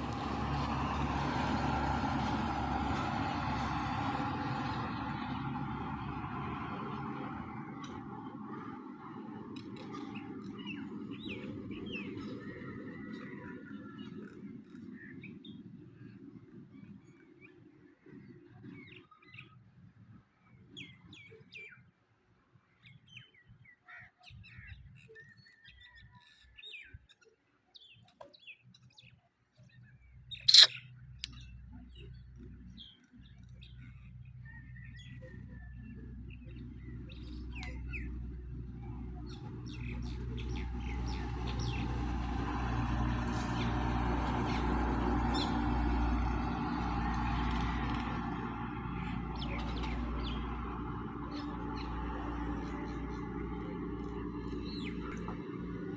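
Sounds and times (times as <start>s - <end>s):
small birds chirping: 30.5s - 32.2s, 39.0s - 42.5s, 51.3s - 55.6s.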